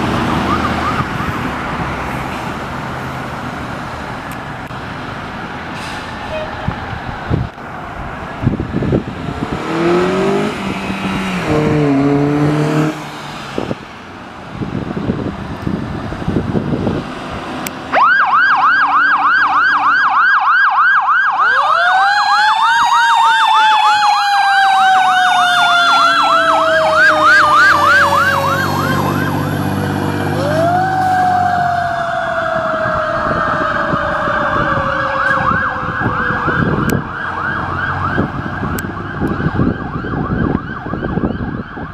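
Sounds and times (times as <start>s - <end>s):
wailing siren: 0.0s - 1.8s, 6.3s - 13.7s, 17.9s - 41.9s
heavy truck engine pulling away: 0.0s - 18.1s, 24.8s - 39.7s
fast yelp siren: 0.3s - 1.3s, 17.9s - 41.9s.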